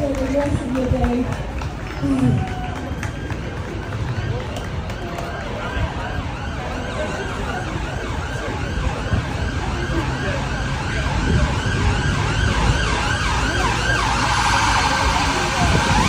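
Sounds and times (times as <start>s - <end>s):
traffic rumble: 0.0s - 16.0s
emergency siren sweeping: 1.9s - 16.0s.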